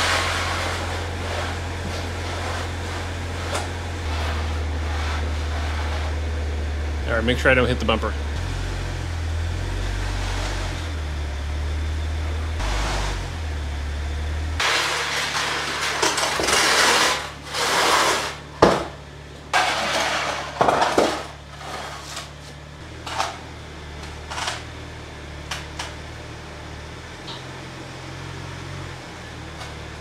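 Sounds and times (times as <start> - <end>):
car engine humming: 0.0 - 30.0
scraping and knocking: 14.6 - 22.4.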